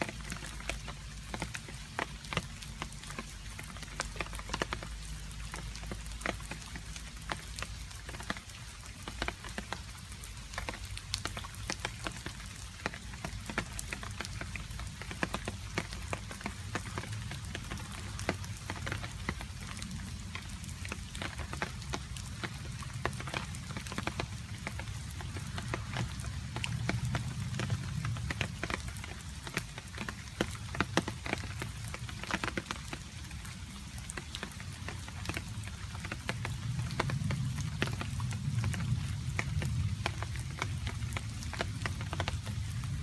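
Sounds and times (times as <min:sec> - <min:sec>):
rain falling: 0:00.0 - 0:43.0.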